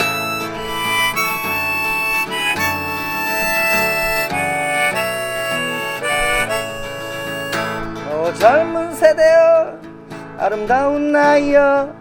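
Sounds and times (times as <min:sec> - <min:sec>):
harmonica melody: 0:00.0 - 0:11.0
guitar accompaniment: 0:00.0 - 0:12.0.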